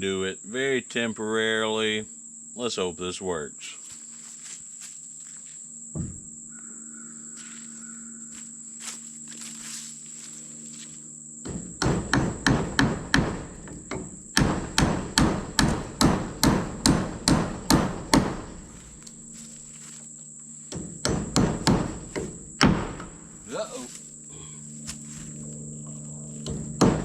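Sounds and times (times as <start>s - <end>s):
hammer striking wood: 11.5s - 18.6s, 20.7s - 23.2s, 26.4s - 27.0s.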